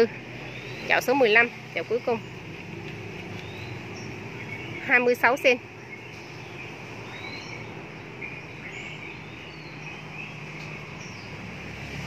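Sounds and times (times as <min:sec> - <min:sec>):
faint bird chirps: 0:03.3 - 0:11.3.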